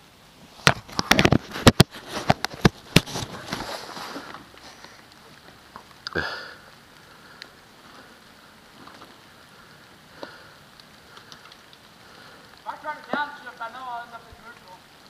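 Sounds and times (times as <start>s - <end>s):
light rain pattering: 0.0s - 15.0s
faint clicks: 4.2s - 7.6s, 9.8s - 13.2s.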